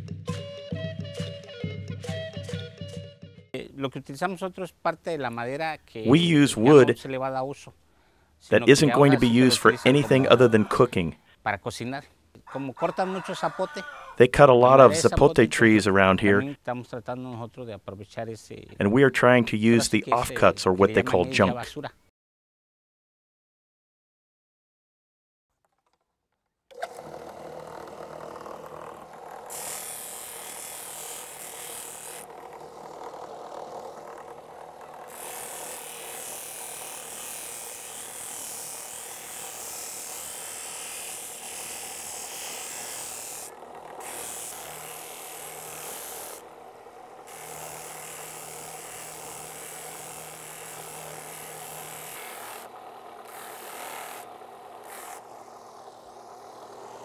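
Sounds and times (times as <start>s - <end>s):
power tool cutting wood: 6.1s - 7.0s, 8.6s - 11.1s, 13.0s - 16.5s, 26.7s - 57.0s.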